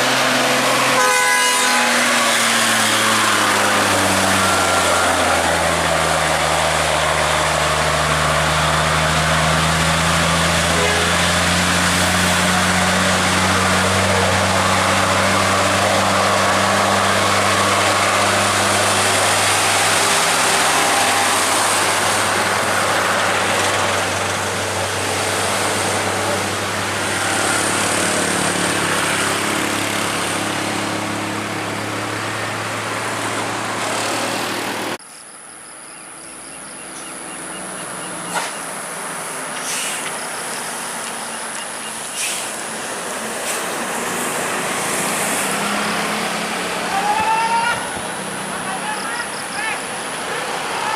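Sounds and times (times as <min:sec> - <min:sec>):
rushing noise: 0:00.0 - 0:35.0
diesel truck engine hum: 0:00.0 - 0:50.9.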